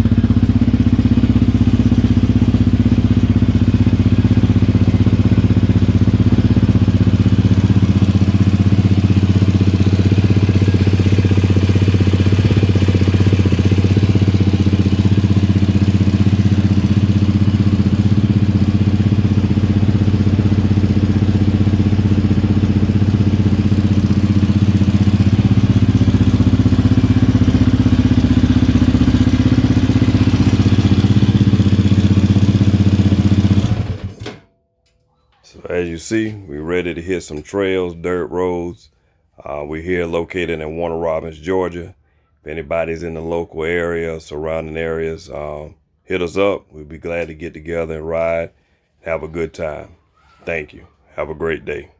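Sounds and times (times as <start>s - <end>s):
atv engine idling: 0.0s - 34.4s.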